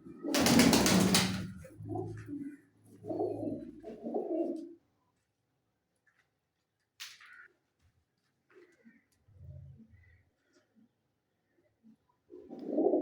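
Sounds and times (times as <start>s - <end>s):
pigeons cooing: 1.9s - 4.7s, 12.4s - 13.0s.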